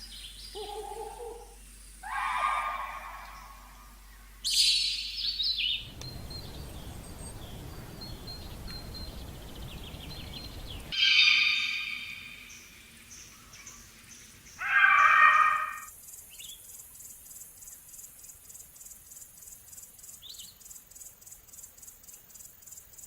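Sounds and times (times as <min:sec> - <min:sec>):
faint high chirps: 0:00.0 - 0:13.8
loud high-pitched animal call: 0:00.6 - 0:03.7, 0:11.0 - 0:12.3, 0:14.6 - 0:15.9.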